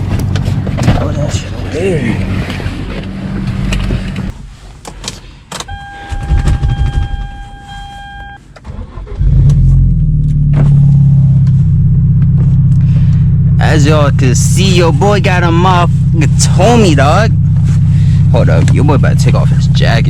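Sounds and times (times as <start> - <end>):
car engine starting and idling: 0.0 - 20.0
electronic warning chime: 5.7 - 8.4.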